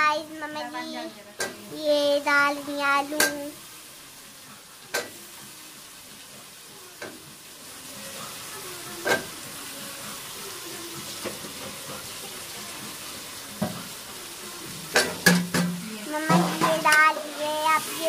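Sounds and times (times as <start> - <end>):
food sizzling in a pan: 0.0 - 18.0
metal utensils clinking on pots: 1.4 - 1.7, 14.9 - 17.1.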